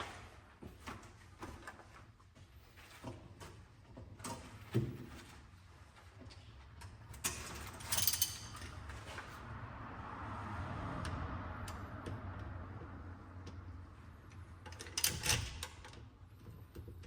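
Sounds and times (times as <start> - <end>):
metal tools clicking and knocking: 7.1 - 8.8.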